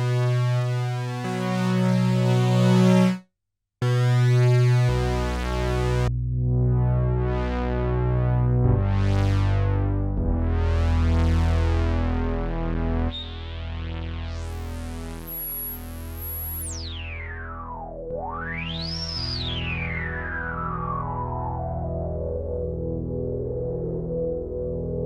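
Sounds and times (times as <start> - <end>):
synthesizer playing held chords: 0.0 - 3.2.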